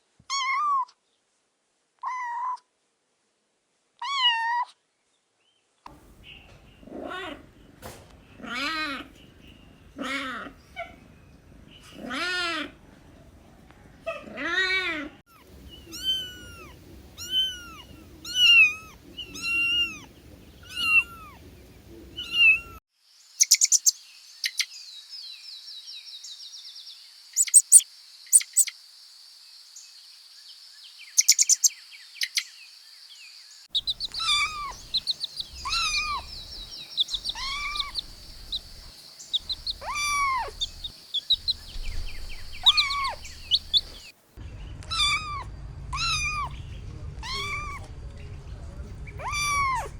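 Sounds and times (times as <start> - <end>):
kittens meowing: 15.9 - 21.4, 33.8 - 44.1, 44.9 - 46.5, 47.2 - 47.8, 49.2 - 49.9.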